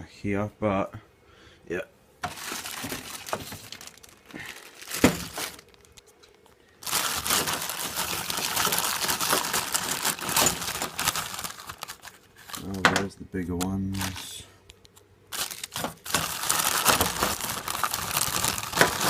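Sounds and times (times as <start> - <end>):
plastic crinkling and rustling: 2.2 - 13.1, 13.8 - 14.4, 15.3 - 19.0.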